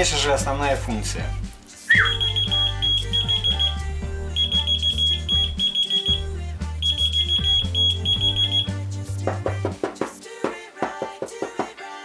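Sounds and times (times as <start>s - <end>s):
background music with bass line: 0.0s - 10.4s
rapid high-pitched alarm beeps: 1.9s - 3.8s, 4.4s - 8.8s.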